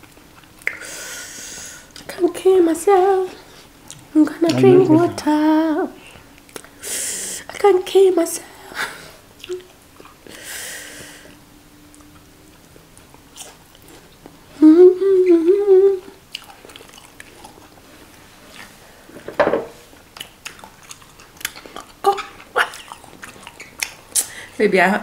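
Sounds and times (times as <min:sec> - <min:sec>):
people chewing with lip smacks: 0:00.0 - 0:02.2, 0:03.5 - 0:04.6, 0:06.0 - 0:06.8, 0:09.4 - 0:10.4, 0:11.0 - 0:14.4, 0:16.0 - 0:18.8, 0:19.9 - 0:24.6
hissing breath: 0:00.7 - 0:01.9, 0:06.0 - 0:07.5, 0:10.2 - 0:11.4
wavering closed-mouth hum: 0:04.2 - 0:06.2.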